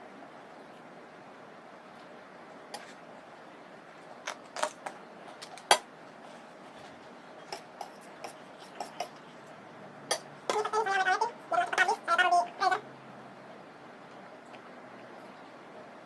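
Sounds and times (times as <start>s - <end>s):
faint steady hiss: 0.0s - 16.0s
clicks and smacks eating noodles: 4.2s - 10.7s.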